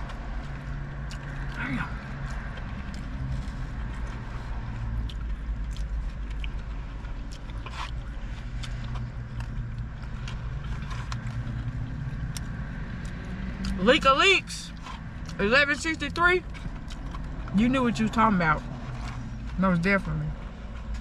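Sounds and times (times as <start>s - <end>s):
person chewing: 0.0s - 13.8s, 14.7s - 15.4s, 16.4s - 17.5s
small clicks and scrapes: 6.0s - 12.5s.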